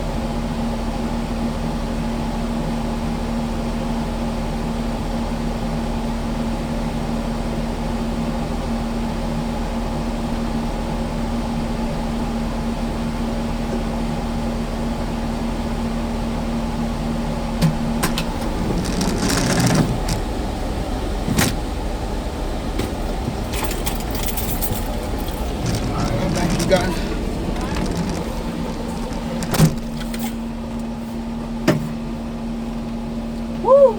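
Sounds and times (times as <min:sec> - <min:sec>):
diesel engine humming: 0:13.2 - 0:33.9
metal clanks and rattles: 0:18.0 - 0:20.3, 0:23.3 - 0:30.5.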